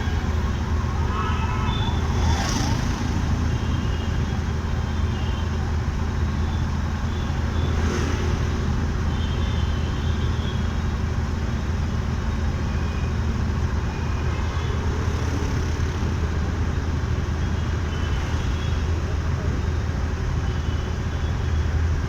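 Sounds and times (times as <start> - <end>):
road and wind noise: 0.0 - 22.0.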